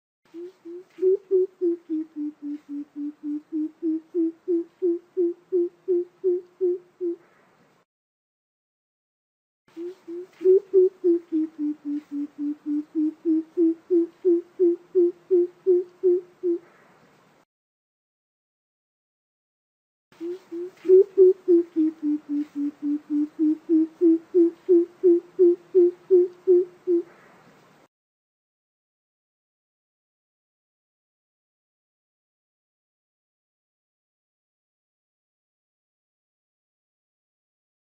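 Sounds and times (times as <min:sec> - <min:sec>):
bird low hoots: 0:00.3 - 0:07.4, 0:09.7 - 0:16.9, 0:20.2 - 0:27.3.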